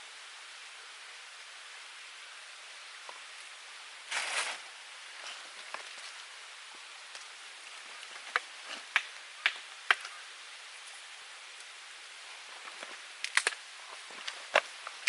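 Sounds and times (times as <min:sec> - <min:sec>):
fire hissing: 0:00.0 - 0:15.0
rustle: 0:00.0 - 0:15.0
dry wood snapping in fire: 0:07.1 - 0:10.2, 0:12.6 - 0:15.0.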